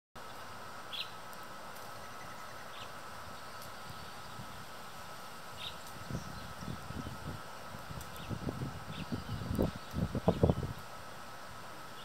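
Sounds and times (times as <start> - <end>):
outdoor background hiss: 0.2 - 12.0
small bird chirps: 0.9 - 1.2, 5.6 - 7.2.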